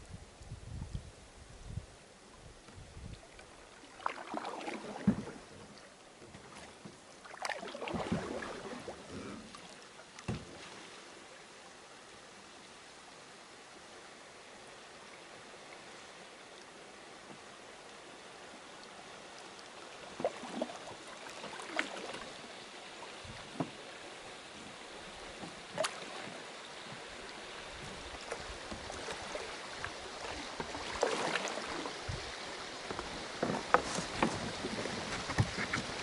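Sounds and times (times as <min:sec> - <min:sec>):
stream water running: 0:00.0 - 0:36.0
knocks against canoe hull: 0:05.0 - 0:05.4, 0:10.2 - 0:10.6, 0:32.9 - 0:36.0.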